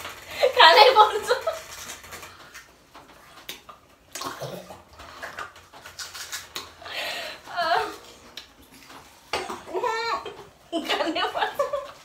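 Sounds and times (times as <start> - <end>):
watery filling slurped: 3.6 - 6.9.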